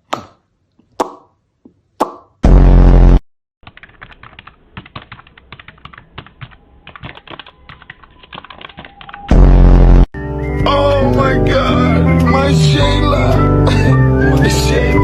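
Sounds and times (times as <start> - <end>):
loud buzz-like blast: 2.4 - 3.2, 9.3 - 10.1
rapid irregular clicking: 3.6 - 9.3.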